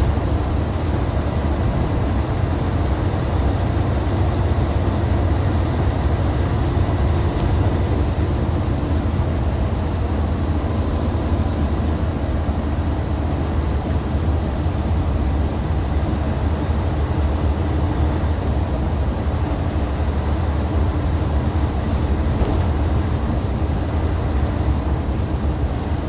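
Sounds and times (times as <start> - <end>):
coach diesel engine running: 0.0 - 26.0
short high hiss: 10.7 - 12.0.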